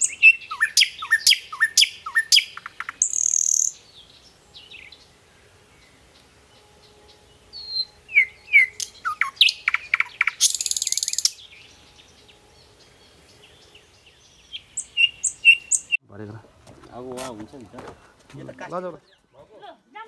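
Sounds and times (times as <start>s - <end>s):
songbird chirping and whistling: 0.0s - 16.0s.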